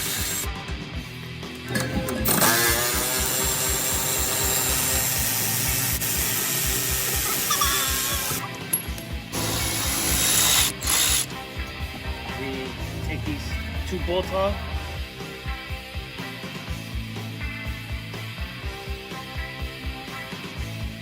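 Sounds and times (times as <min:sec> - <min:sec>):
power tool running: 0:00.0 - 0:00.6, 0:01.6 - 0:11.4
background music with steady beat: 0:00.0 - 0:21.0.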